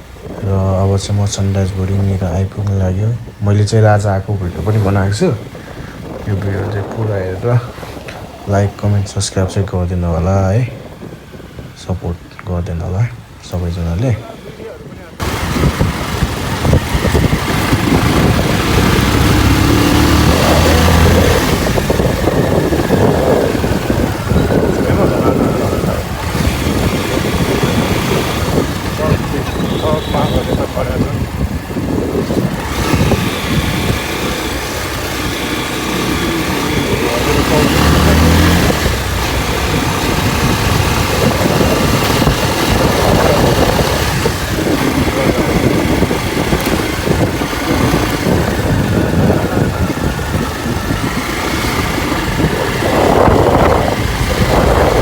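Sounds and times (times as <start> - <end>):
steady rushing noise: 0.0 - 12.1, 13.0 - 55.0
motorcycle engine drone: 0.0 - 55.0
wind buffeting microphone: 0.0 - 55.0.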